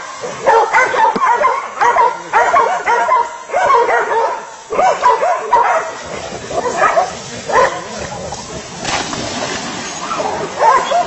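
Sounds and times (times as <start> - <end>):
dog barking and yelping: 0.3 - 7.9, 10.1 - 11.0.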